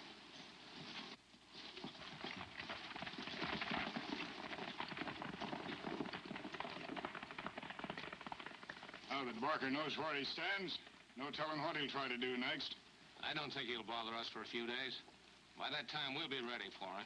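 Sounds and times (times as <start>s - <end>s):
film soundtrack hiss: 0.0s - 17.0s
horse hooves clattering: 1.6s - 11.0s.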